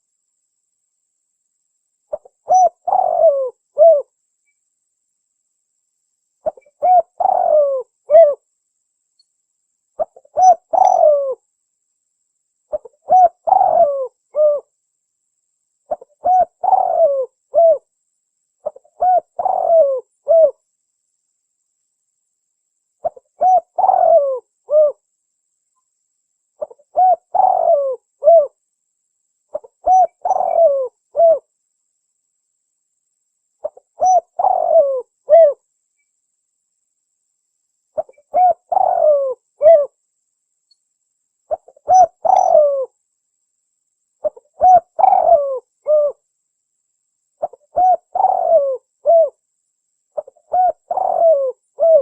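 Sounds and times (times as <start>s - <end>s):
dove cooing: 2.1s - 4.1s, 6.4s - 8.4s, 10.0s - 11.4s, 12.7s - 14.7s, 15.9s - 17.9s, 18.6s - 20.6s, 23.0s - 25.0s, 26.6s - 28.6s, 29.5s - 31.5s, 33.6s - 35.6s, 38.0s - 40.0s, 41.5s - 42.9s, 44.2s - 46.2s, 47.4s - 49.4s, 50.2s - 52.0s.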